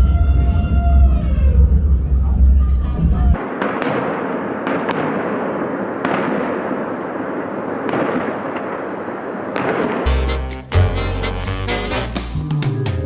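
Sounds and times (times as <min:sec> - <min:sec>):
fireworks crackling and banging: 0:03.0 - 0:12.4
music: 0:10.1 - 0:13.0.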